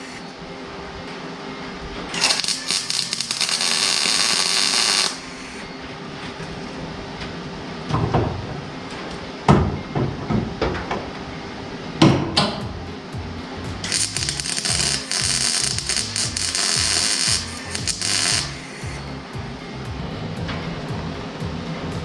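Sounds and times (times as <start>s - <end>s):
welding arc crackling: 2.1s - 5.6s, 12.6s - 22.0s.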